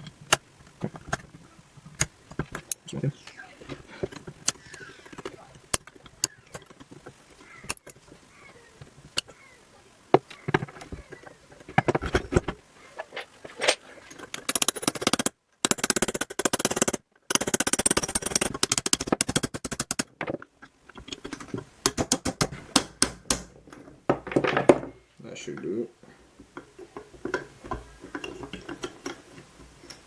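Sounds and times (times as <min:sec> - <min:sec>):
hand tools clicking on metal: 0:03.9 - 0:08.0, 0:13.0 - 0:20.1, 0:20.9 - 0:23.5.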